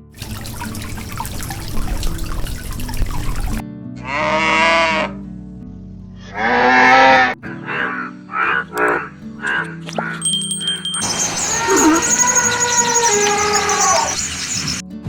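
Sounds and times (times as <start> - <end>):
cow mooing: 4.0 - 5.2, 10.9 - 14.8.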